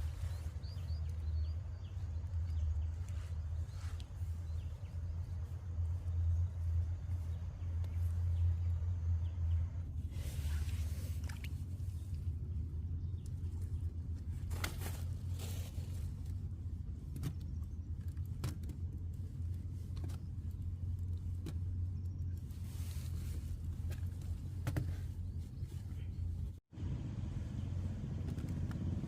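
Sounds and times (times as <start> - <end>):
vehicle engine running: 0.0 - 18.1, 26.7 - 29.0.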